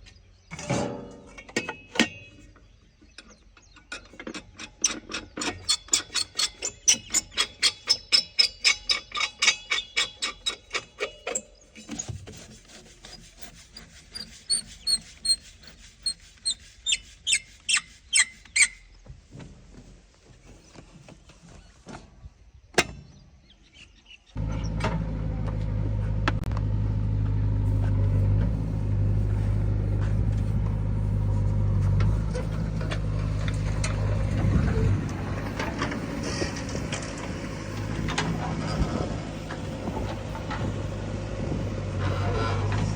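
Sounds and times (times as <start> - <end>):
steady engine hum: 24.4 - 42.9.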